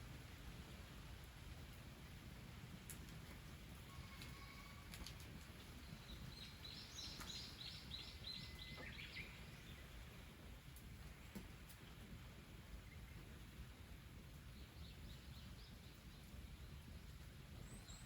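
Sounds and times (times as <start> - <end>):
faint songbird song: 5.5 - 10.4, 11.0 - 18.0.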